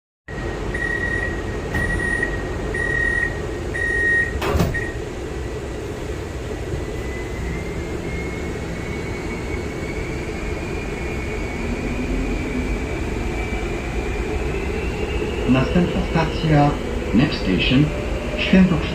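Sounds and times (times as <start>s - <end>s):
train running rumble: 0.3s - 18.9s
train doors shutting: 0.4s - 14.8s
door warning beeps: 0.7s - 5.0s.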